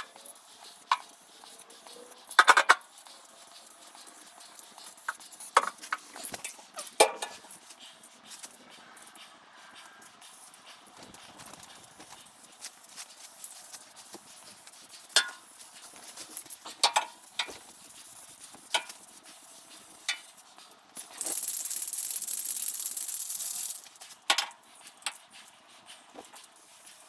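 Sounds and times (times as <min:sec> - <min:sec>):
tools clicking and knocking: 0:02.3 - 0:02.8, 0:05.1 - 0:07.5, 0:15.2 - 0:15.4, 0:16.2 - 0:17.7, 0:24.3 - 0:25.2.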